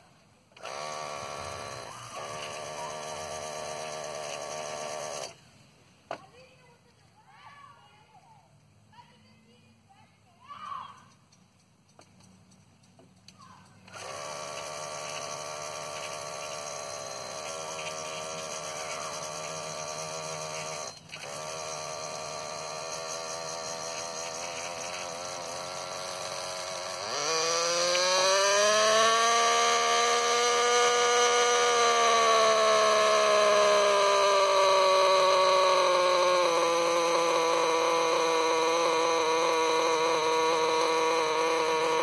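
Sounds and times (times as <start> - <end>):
model helicopter engine running: 0.6 - 5.4, 13.8 - 42.0.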